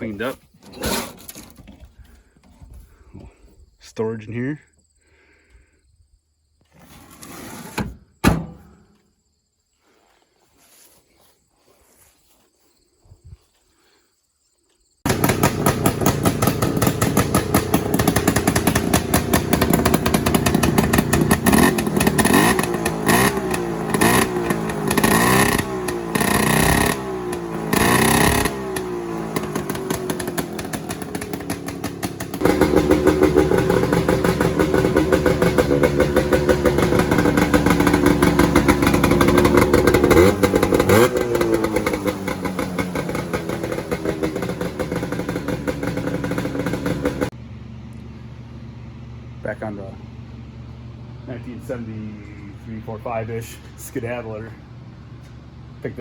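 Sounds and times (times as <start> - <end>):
snowmobile engine revving: 15.1 - 47.3.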